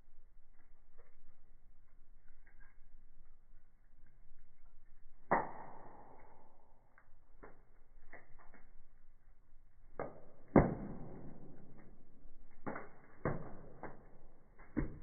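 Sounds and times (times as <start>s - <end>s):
firewood crackling: 0.0s - 15.0s
loud ringing pop of firewood: 5.3s - 6.6s, 10.0s - 12.0s.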